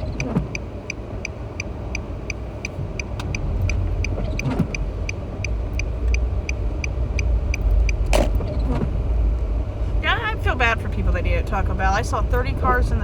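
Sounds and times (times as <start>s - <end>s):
turn signal indicator ticking: 0.0s - 8.4s
car driving rumble: 0.0s - 13.0s.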